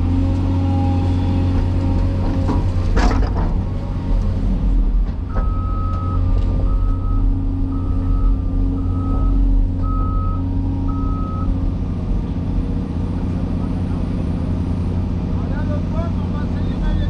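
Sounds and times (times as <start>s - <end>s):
diesel engine rumbling: 0.0s - 17.0s
backup alarm beeping: 5.3s - 11.5s.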